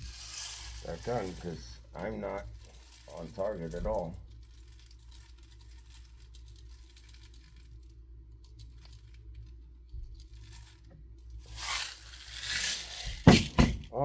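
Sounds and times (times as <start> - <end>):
steel pellets poured rattling: 0.0 - 9.5, 10.2 - 13.4.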